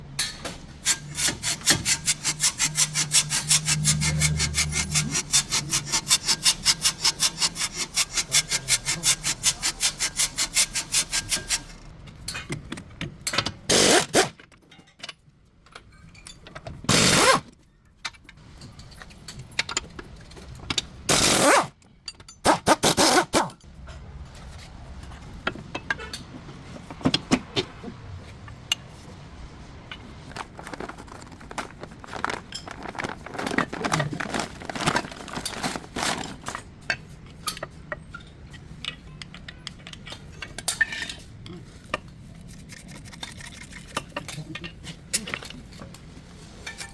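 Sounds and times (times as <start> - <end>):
rhythmic scraping strokes: 0.8 - 11.8.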